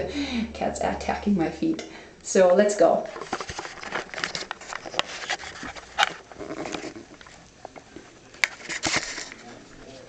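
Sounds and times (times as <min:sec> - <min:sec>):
rustling: 0:03.1 - 0:10.0.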